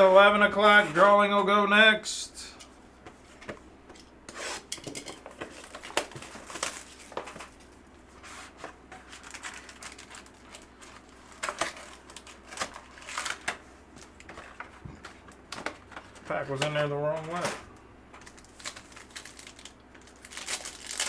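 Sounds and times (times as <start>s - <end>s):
wrapper crinkling and tearing: 9.1s - 13.6s, 18.2s - 21.0s.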